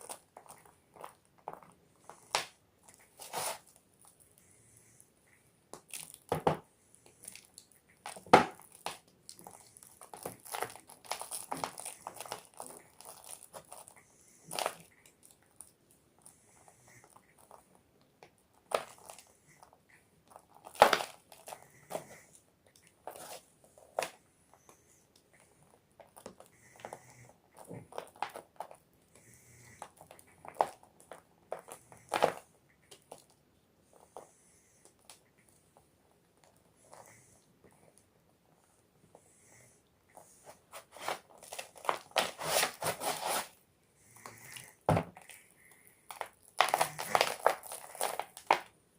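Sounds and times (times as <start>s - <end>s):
chalk crunching and crackling: 0.0s - 4.2s, 23.0s - 24.8s, 40.2s - 43.6s, 46.1s - 48.7s.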